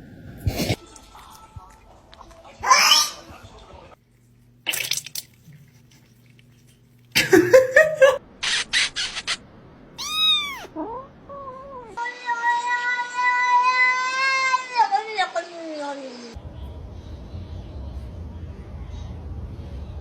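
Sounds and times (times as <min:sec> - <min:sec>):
cat hissing: 0:10.0 - 0:10.7
cats meowing: 0:10.0 - 0:12.0.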